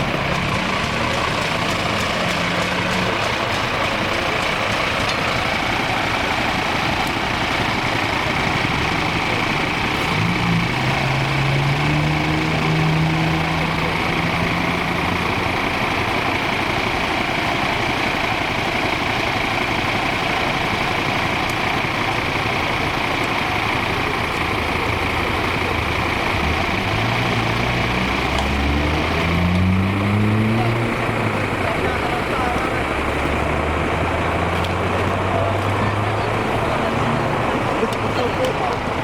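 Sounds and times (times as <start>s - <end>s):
vehicle engines running: 0.0s - 39.0s
engine rising in pitch: 8.4s - 15.8s, 24.2s - 39.0s.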